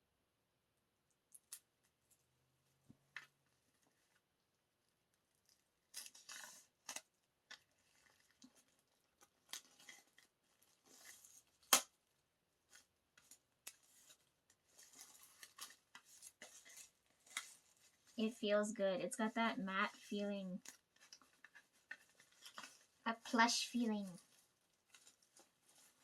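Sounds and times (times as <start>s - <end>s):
paper and packaging rustling: 5.3s - 11.8s, 12.6s - 18.3s, 19.3s - 26.0s.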